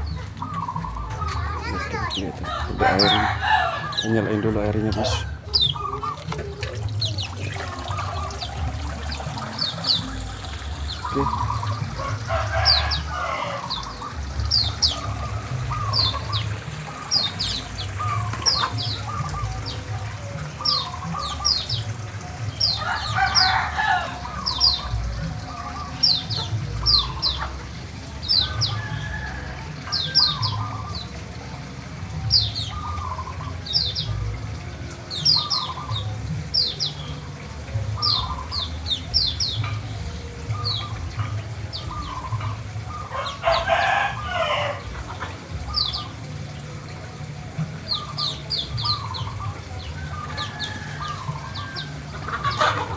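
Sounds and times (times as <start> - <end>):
chickens clucking: 0.0 - 52.9
rooster crowing: 2.4 - 5.4, 11.9 - 14.0, 22.7 - 24.6, 28.6 - 30.2, 43.1 - 44.9, 50.0 - 52.8.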